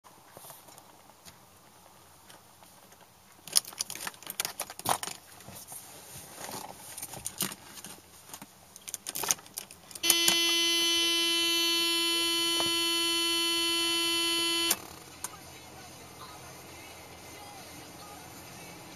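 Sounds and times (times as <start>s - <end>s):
car warning buzzer: 10.0s - 14.9s.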